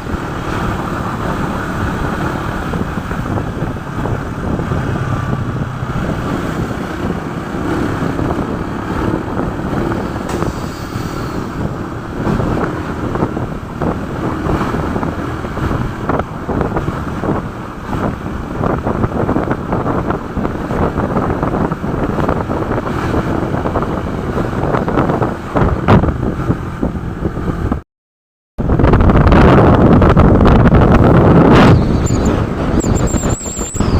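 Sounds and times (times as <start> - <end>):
motorcycle engine: 0.0 - 27.0
road noise: 0.0 - 27.8, 28.6 - 33.9
wind buffeting microphone: 0.0 - 27.8, 28.6 - 33.9.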